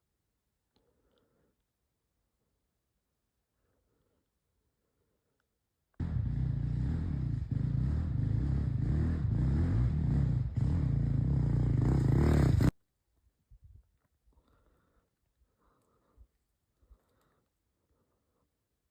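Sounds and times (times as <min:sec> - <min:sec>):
dirt bike engine revving: 0:06.0 - 0:12.7.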